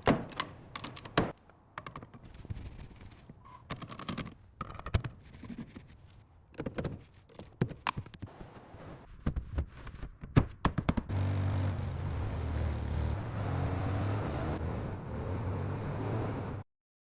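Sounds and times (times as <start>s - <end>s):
sharp clicks and knocks: 0.0s - 2.4s
car engine running: 11.1s - 14.6s.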